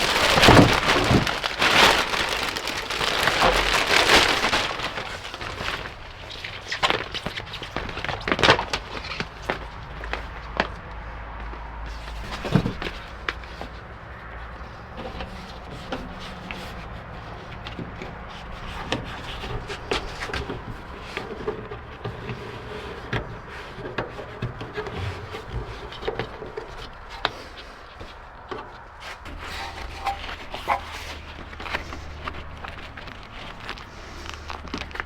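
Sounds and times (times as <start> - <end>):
rubbing and scraping on door seal: 0.0 - 6.7, 15.0 - 35.0.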